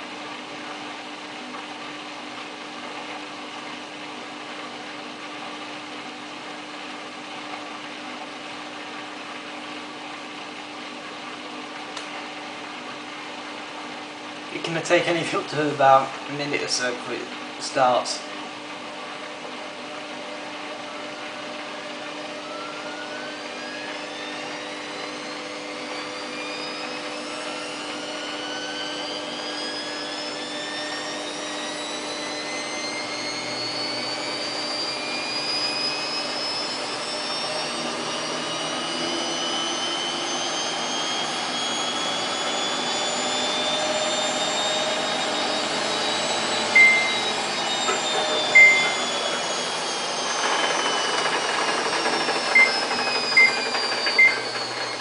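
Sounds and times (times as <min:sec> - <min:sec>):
washing machine drum spinning: 0:45.1 - 0:55.0
short beeps: 0:46.8 - 0:47.3, 0:48.4 - 0:49.1, 0:54.2 - 0:54.4.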